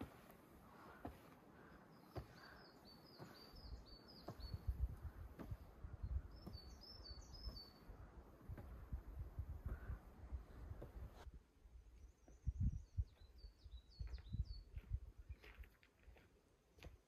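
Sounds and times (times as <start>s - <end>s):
songbird singing high notes: 6.0s - 7.9s.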